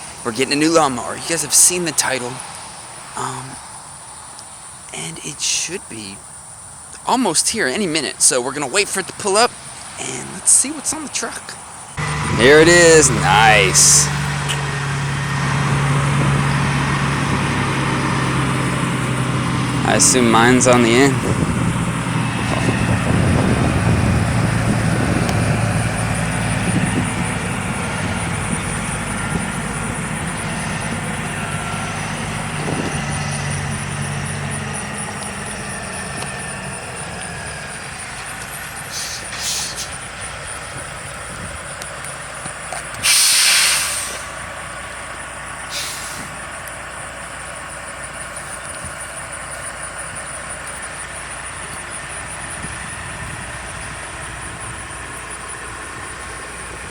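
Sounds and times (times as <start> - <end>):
truck engine running: 0.0 - 56.9
air brake hisses: 38.9 - 40.0, 43.0 - 44.4, 45.7 - 46.4.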